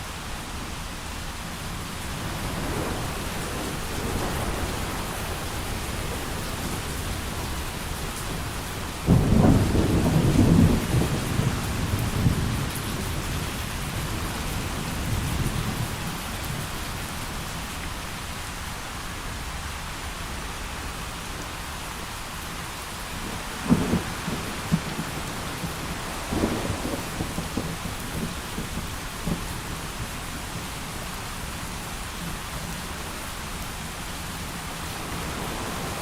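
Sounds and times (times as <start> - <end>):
heavy rain: 0.0 - 36.0
thunder rumbling: 2.2 - 16.7, 23.2 - 30.6.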